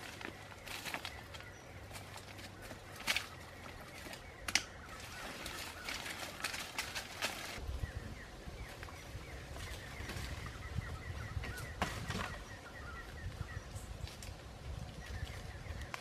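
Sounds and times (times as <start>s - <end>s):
rustling of vines: 0.0s - 16.0s.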